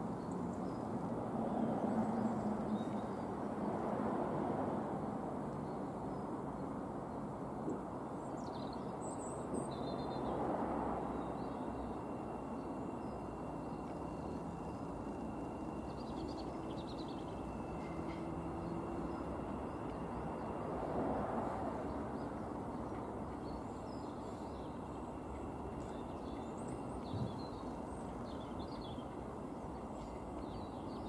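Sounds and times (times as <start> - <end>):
electric train rumbling: 10.3 - 31.0.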